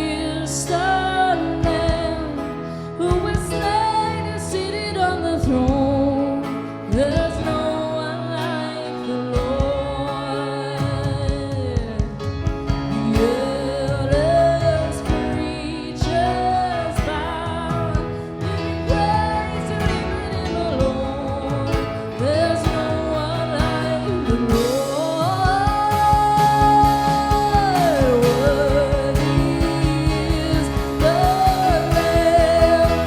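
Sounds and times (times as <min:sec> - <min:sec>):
worship band playing: 0:00.0 - 0:33.0
person singing long notes: 0:19.2 - 0:33.0.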